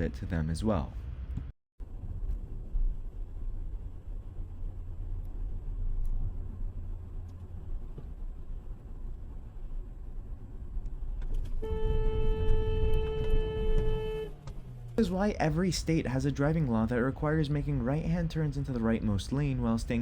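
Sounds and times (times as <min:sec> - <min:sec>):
car road and engine rumble: 0:00.1 - 0:20.0
car horn held note: 0:11.6 - 0:14.4.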